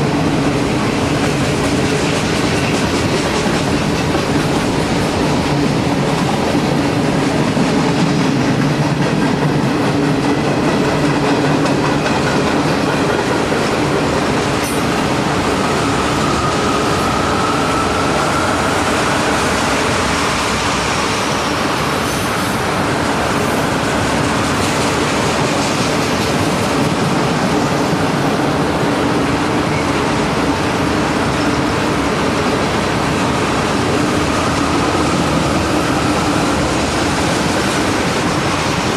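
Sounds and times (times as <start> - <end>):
freight train rolling past: 0.0 - 38.9
faint high wheel squeal: 15.4 - 18.9.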